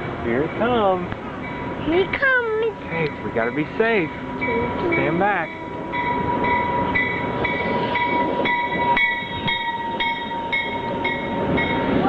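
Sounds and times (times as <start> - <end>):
train rumble: 0.0 - 12.0
bell ringing: 4.4 - 12.0.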